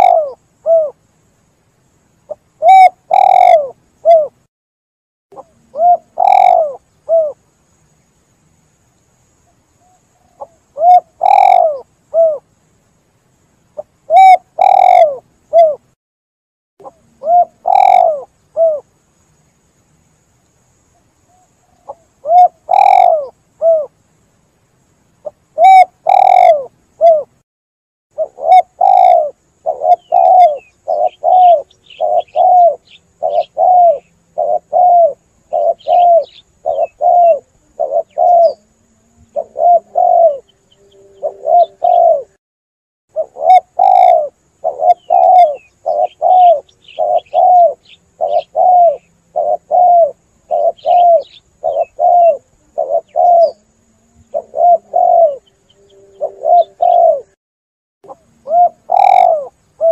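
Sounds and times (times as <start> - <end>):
dove cooing: 0.0 - 1.0, 2.3 - 4.4, 5.4 - 7.4, 9.8 - 12.4, 13.8 - 15.8, 16.8 - 18.9, 21.3 - 23.9, 25.2 - 27.3, 28.2 - 42.4, 43.1 - 57.4, 58.1 - 59.9
small birds chirping: 8.9 - 12.4, 16.8 - 18.8, 20.9 - 24.2, 28.2 - 42.4, 43.1 - 57.3, 58.1 - 59.9.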